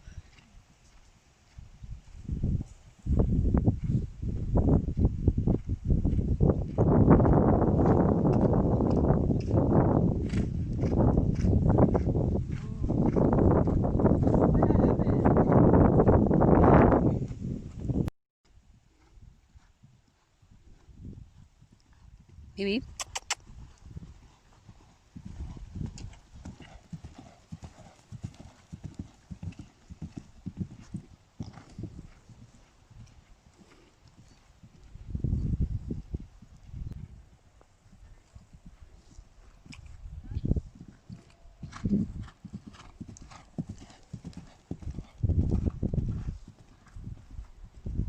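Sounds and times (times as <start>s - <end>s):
horse hoofbeats: 25.2s - 34.4s, 40.8s - 47.1s.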